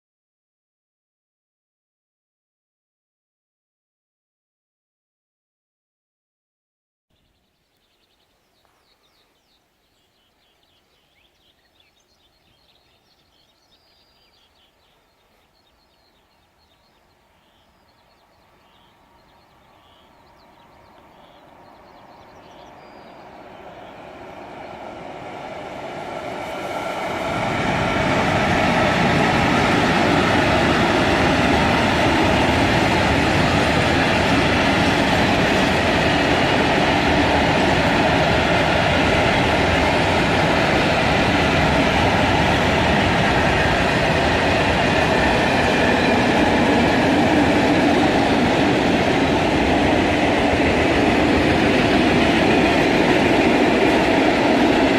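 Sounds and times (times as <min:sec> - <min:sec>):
faint birdsong: 0:07.1 - 0:27.3
freight train passing: 0:09.0 - 0:54.9.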